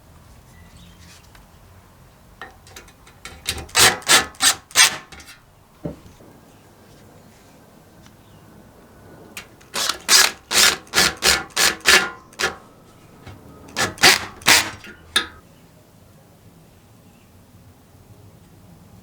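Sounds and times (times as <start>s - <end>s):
hand tool scraping strokes: 2.4s - 5.4s, 9.4s - 15.4s.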